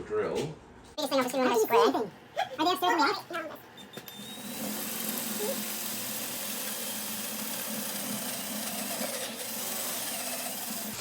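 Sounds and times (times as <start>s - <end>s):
electric drill drilling into metal: 3.8s - 11.0s.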